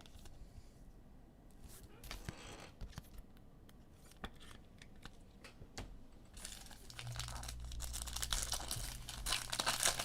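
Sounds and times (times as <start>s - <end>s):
card pack wrapper tearing: 6.4s - 10.0s.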